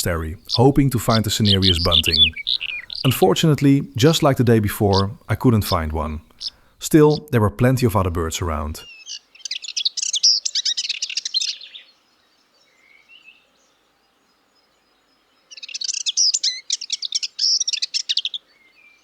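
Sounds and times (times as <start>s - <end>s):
faint bird call: 0.0s - 3.4s
songbird singing: 0.0s - 19.0s.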